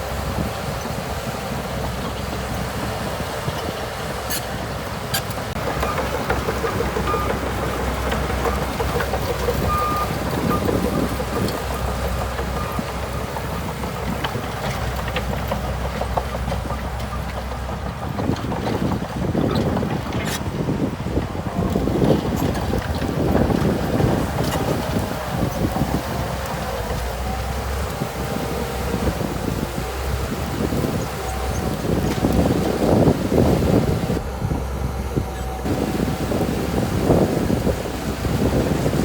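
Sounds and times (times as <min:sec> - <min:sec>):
bulldozer diesel engine running: 0:00.0 - 0:39.0
short high squeaks: 0:04.3 - 0:04.5.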